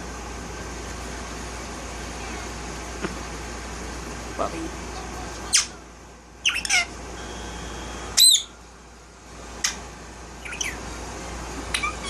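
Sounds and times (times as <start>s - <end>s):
parakeet chirps and squawks: 5.4s - 5.8s, 6.4s - 7.0s, 8.1s - 8.6s, 9.6s - 9.8s, 10.4s - 10.9s, 11.7s - 12.0s.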